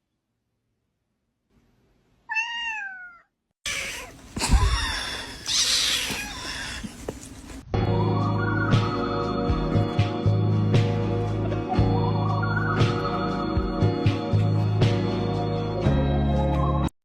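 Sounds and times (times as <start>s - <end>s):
cat meowing: 2.3s - 7.0s.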